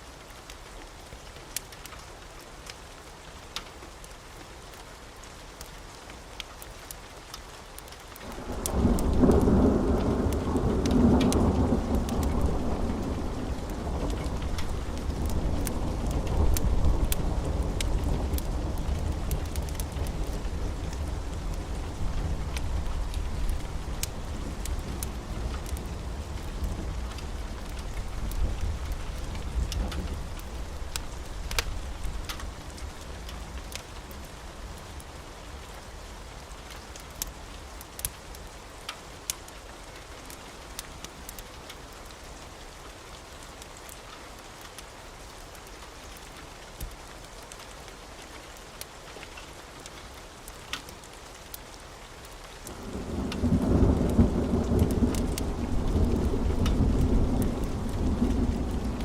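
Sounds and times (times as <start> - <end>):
wood fire crackling and popping: 6.4 - 34.2, 36.7 - 39.5, 52.2 - 59.0
low rumble of fire: 7.8 - 43.9, 48.8 - 59.0.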